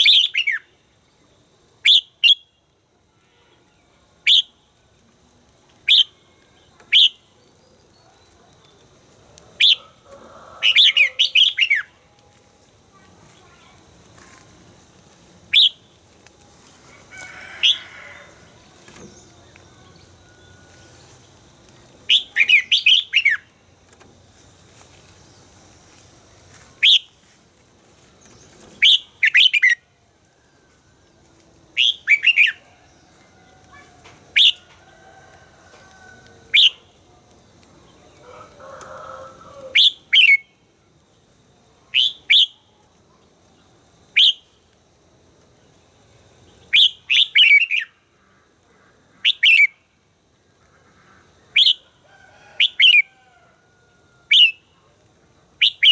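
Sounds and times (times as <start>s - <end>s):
bird singing bright phrases: 0.0s - 0.7s, 22.0s - 23.5s, 31.8s - 33.1s.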